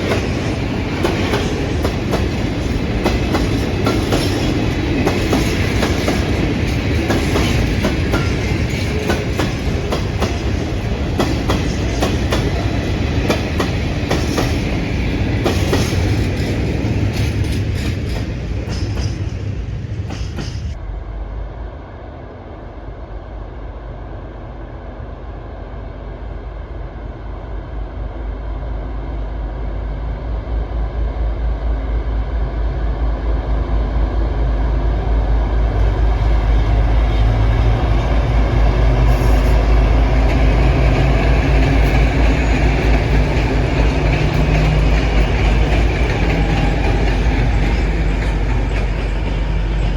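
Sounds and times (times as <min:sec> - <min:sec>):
train wheels clacking over rail joints: 0:00.0 - 0:20.8, 0:35.6 - 0:49.9.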